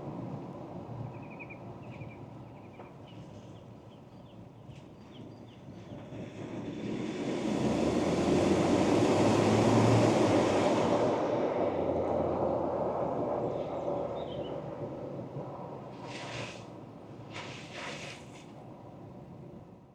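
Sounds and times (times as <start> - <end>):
vehicle passing: 6.5 - 13.5.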